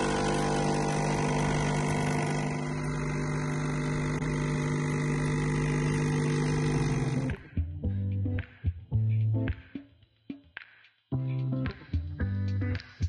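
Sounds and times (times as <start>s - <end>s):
electric appliance motor humming: 0.0s - 7.4s.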